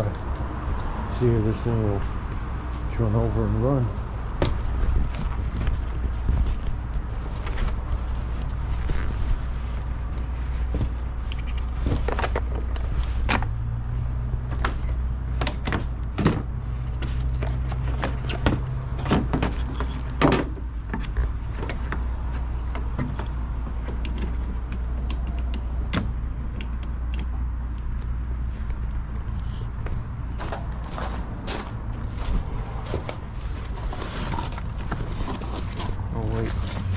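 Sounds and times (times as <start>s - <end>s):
clicks and clunks of car parts: 10.7s - 13.5s, 14.4s - 29.0s.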